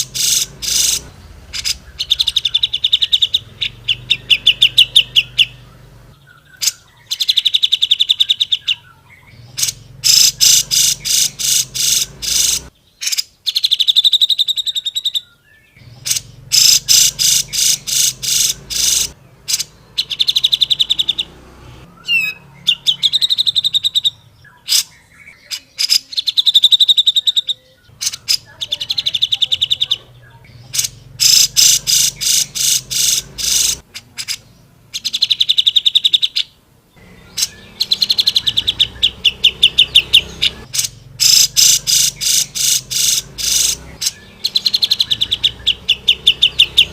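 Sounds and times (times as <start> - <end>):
bulbul singing rattling phrases: 0.0 - 46.9.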